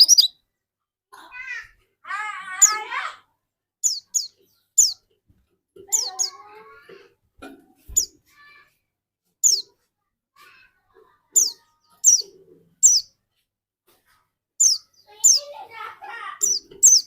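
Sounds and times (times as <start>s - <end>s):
bird chirping: 0.0s - 0.4s, 3.8s - 5.1s, 5.9s - 6.5s, 9.4s - 9.7s, 11.3s - 13.2s, 14.6s - 15.6s, 16.4s - 17.0s.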